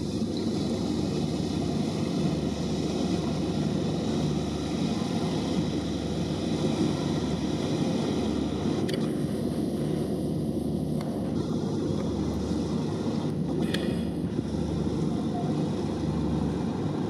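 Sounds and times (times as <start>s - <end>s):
boat engine rumble: 0.0s - 17.0s.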